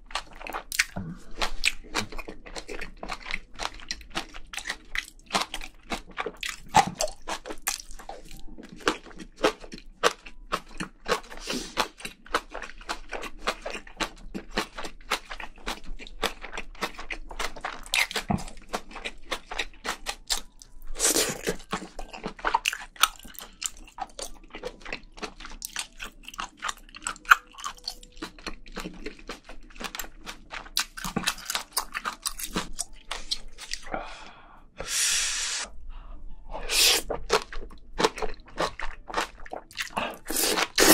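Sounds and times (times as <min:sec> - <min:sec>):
chewing and crunching food: 0:00.0 - 0:34.3, 0:36.9 - 0:40.9.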